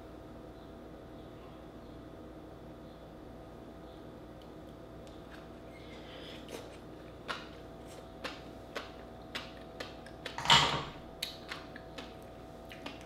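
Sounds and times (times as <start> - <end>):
wet chewing clicks and pops: 6.5 - 10.5, 11.1 - 13.0.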